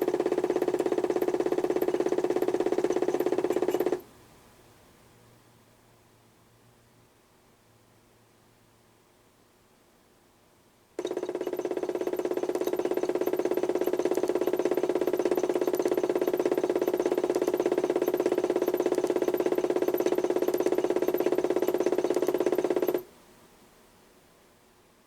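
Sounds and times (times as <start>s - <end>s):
toy washing machine motor running: 0.0s - 4.0s, 11.0s - 23.0s.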